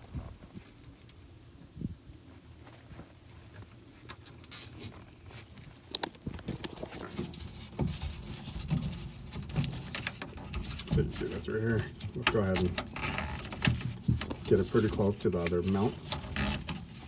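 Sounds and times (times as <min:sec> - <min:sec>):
hands handling wiring: 0:05.9 - 0:17.0
plastic zip tie clicks: 0:13.0 - 0:13.5, 0:16.4 - 0:16.6.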